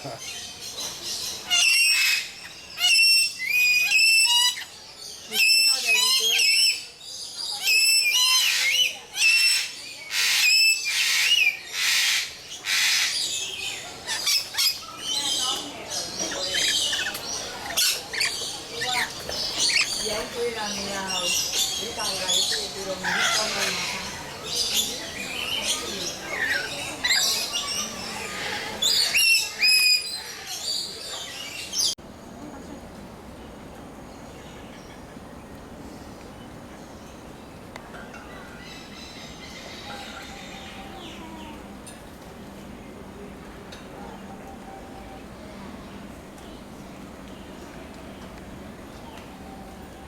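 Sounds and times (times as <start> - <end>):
birds chirping and calling: 0.0 - 32.0, 38.1 - 42.0.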